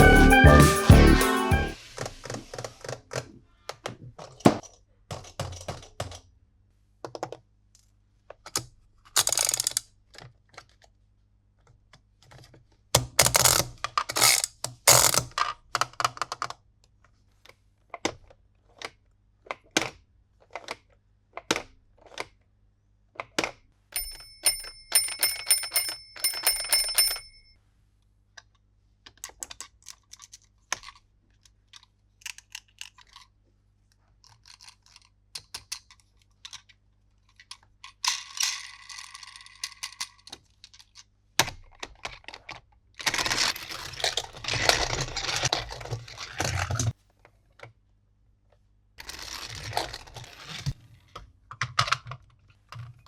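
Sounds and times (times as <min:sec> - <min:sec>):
plastic parts clicking and tapping: 0:02.6 - 0:06.3, 0:23.1 - 0:23.6, 0:28.4 - 0:43.3, 0:51.1 - 0:53.0.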